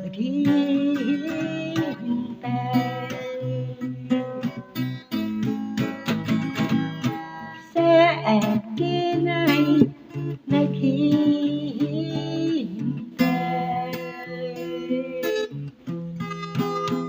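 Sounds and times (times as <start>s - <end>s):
person singing long notes: 0.0s - 4.8s, 7.4s - 15.7s
acoustic guitar strumming: 0.0s - 17.0s.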